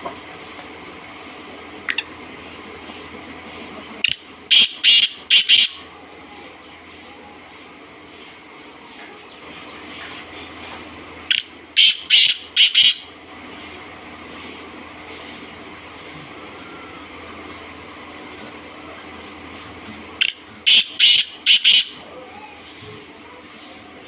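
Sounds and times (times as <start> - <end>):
bird calling high notes: 4.1 - 5.9, 11.3 - 13.1, 20.2 - 22.0.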